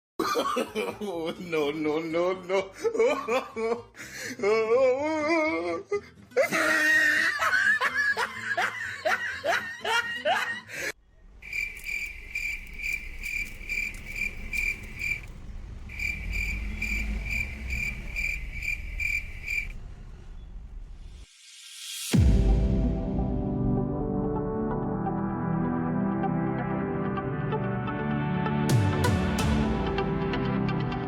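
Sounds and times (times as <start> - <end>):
people laughing: 0.2 - 3.9, 6.4 - 10.9
cricket chirping: 11.1 - 21.2.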